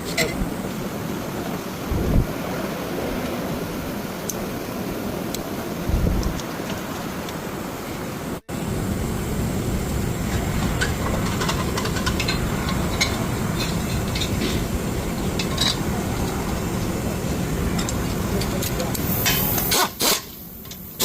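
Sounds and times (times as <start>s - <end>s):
vehicle engine running: 8.5s - 19.6s.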